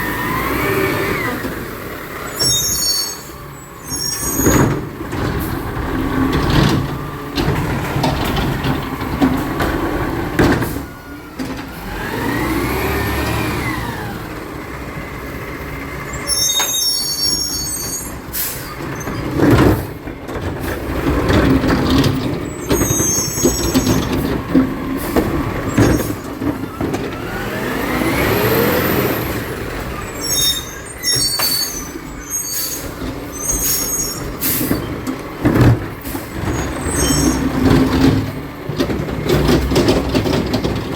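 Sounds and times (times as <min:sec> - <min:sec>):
truck engine revving: 0:00.0 - 0:40.9
sharp high squeals: 0:02.3 - 0:04.6, 0:16.2 - 0:19.1, 0:22.6 - 0:24.0, 0:30.1 - 0:34.4.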